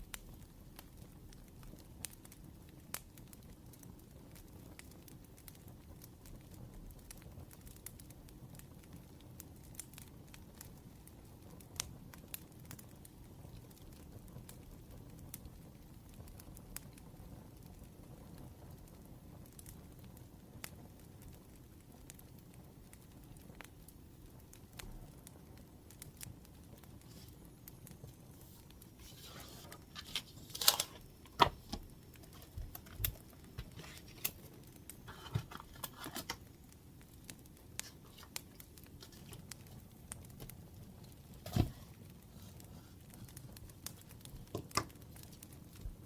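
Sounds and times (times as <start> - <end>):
wood fire crackling: 0.0 - 46.0
paper rustling and tearing: 28.1 - 36.4.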